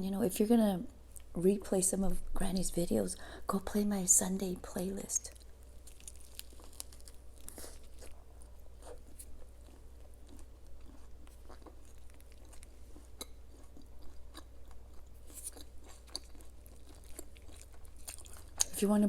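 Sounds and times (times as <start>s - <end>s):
low steady hum: 0.0s - 19.0s
person chewing and crunching food: 5.2s - 18.8s.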